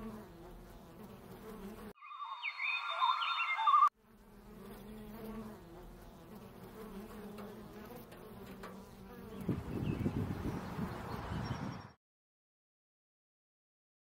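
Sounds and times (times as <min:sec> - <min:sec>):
flying insect buzzing: 0:00.0 - 0:10.8
high warbling sound: 0:02.0 - 0:03.9.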